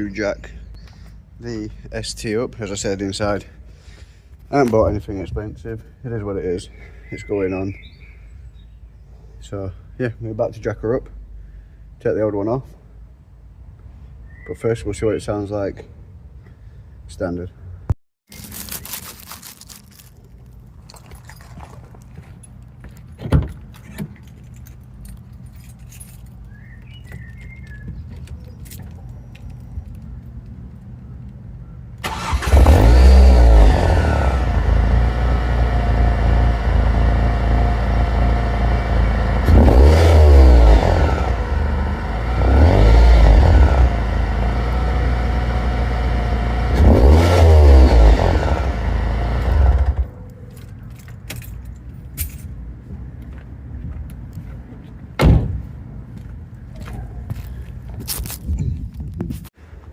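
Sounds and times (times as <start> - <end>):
car engine starting and revving: 32.0 - 50.1.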